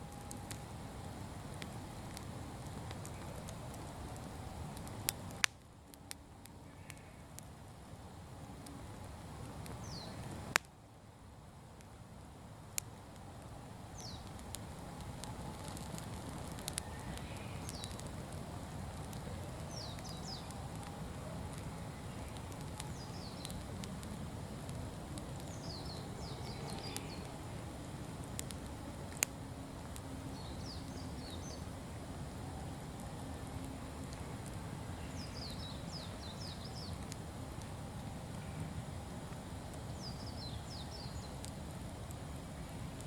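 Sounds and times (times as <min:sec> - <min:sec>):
bonfire burning: 0:00.0 - 0:43.0
fire crackling pops: 0:00.0 - 0:43.0
bird chirping: 0:25.5 - 0:27.3, 0:35.0 - 0:37.0.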